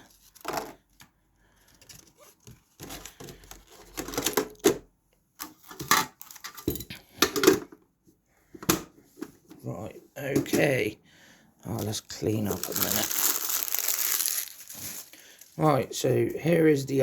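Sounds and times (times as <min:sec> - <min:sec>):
card packs clicking and rustling: 0:01.6 - 0:04.7, 0:05.4 - 0:06.7, 0:11.7 - 0:15.6.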